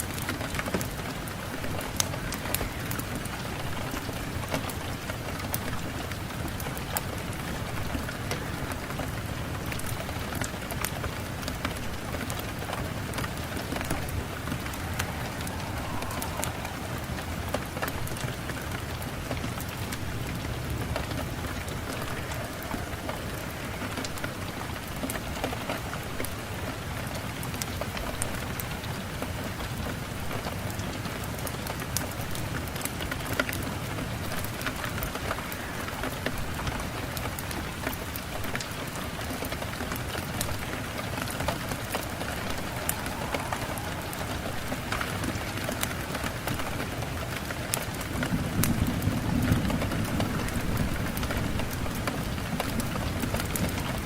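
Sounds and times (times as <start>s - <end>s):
rain pattering on hard surface: 0.0s - 54.0s.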